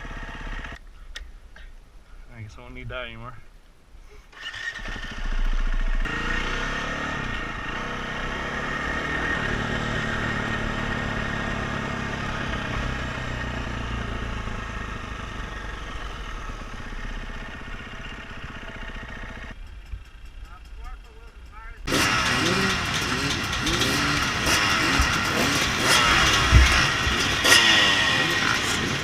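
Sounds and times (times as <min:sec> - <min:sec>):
dirt bike engine revving: 0:04.4 - 0:19.6, 0:21.8 - 0:29.0.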